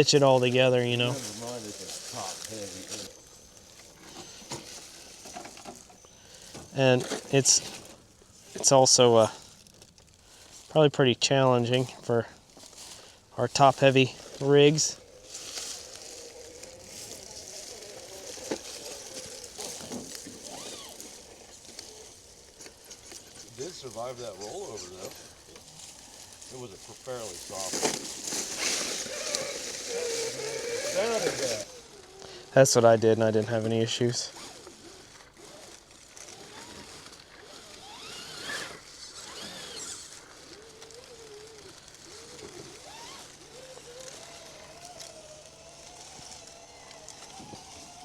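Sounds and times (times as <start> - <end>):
small electric motor whining: 0.0 - 10.8, 11.4 - 48.0.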